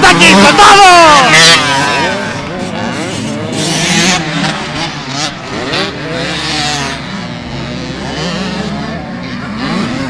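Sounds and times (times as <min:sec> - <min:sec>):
motocross bike engines revving: 0:00.0 - 0:10.0.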